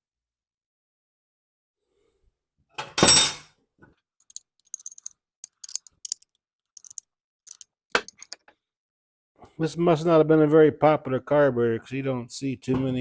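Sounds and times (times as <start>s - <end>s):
light metallic clicks: 4.3s - 6.2s, 6.8s - 8.4s
metal parts clattering: 4.3s - 6.2s, 6.8s - 8.4s.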